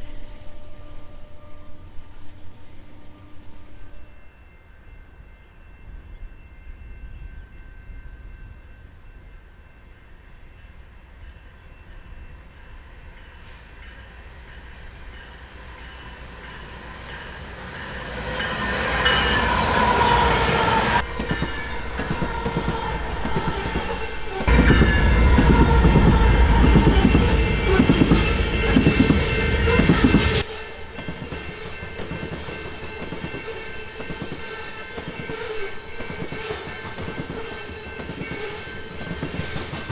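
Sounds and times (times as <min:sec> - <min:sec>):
freight train rumbling past: 0:00.0 - 0:39.9
train horn chord: 0:16.4 - 0:30.9.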